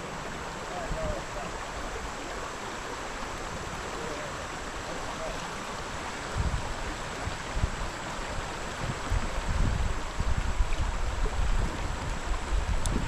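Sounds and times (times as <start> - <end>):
creek water running: 0.0 - 13.0
wind buffeting microphone: 2.9 - 13.0.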